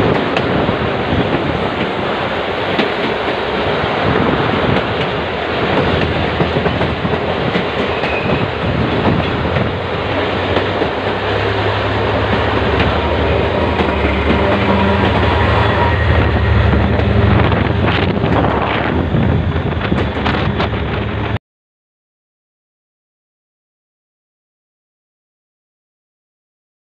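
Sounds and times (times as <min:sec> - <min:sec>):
train wheels clattering over rail joints: 0:00.0 - 0:21.4.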